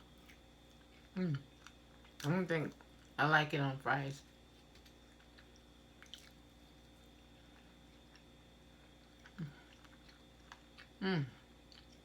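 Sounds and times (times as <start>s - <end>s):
person humming: 11.0s - 11.4s.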